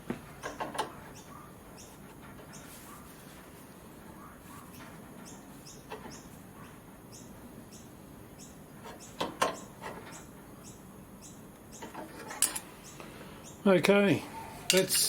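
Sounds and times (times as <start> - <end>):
small bird chirping: 0.4 - 3.4, 4.1 - 12.1, 12.7 - 13.7.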